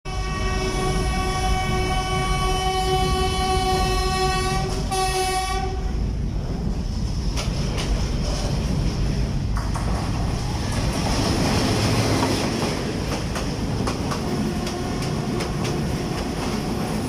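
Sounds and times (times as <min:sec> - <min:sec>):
train horn blasts: 0:00.1 - 0:06.0
train rumbling on rails: 0:00.1 - 0:17.0
rail clacks: 0:06.4 - 0:17.0.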